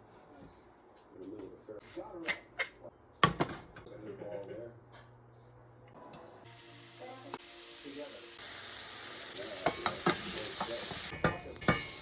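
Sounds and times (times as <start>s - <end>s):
food sizzling in frying pan: 6.2s - 12.0s.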